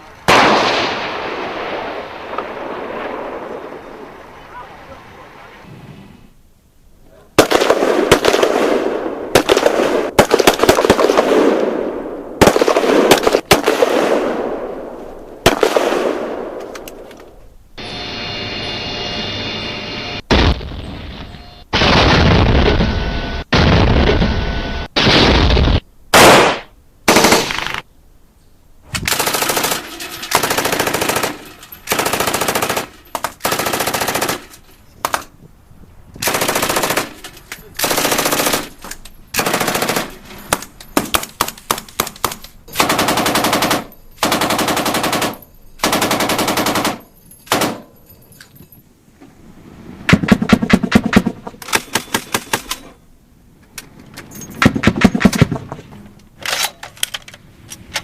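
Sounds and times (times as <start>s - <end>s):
separate gunshots: 0.3s - 3.8s, 7.4s - 16.7s, 21.7s - 27.9s, 50.1s - 52.7s
machine gun bursts: 29.1s - 35.2s, 36.2s - 47.8s.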